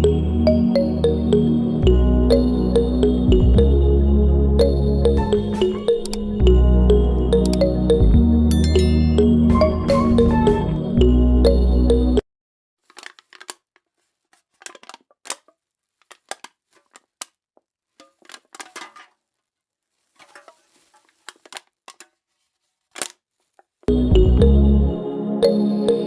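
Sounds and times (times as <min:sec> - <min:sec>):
small clicks: 0:12.9 - 0:17.4.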